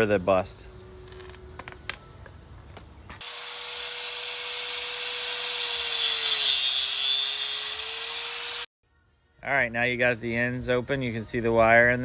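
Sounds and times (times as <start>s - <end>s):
angle grinder cutting hose: 3.2s - 8.7s.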